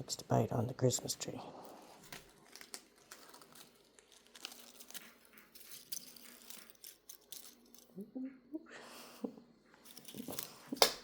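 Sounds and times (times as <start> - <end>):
kitten tugging crinkling branches: 1.6 - 8.0.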